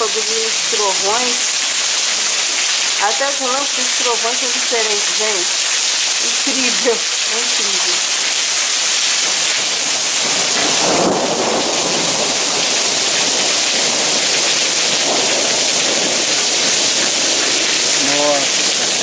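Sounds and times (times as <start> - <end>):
heavy rain pouring: 0.0 - 19.0
thunder rumble: 9.3 - 19.0.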